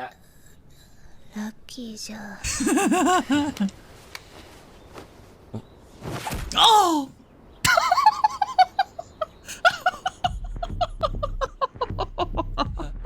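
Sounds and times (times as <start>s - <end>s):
person laughing hard: 2.5s - 3.7s, 7.7s - 13.0s.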